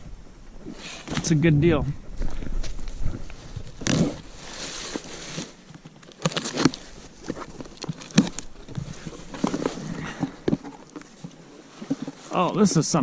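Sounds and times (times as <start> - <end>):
packing material rustling: 2.2 - 12.4.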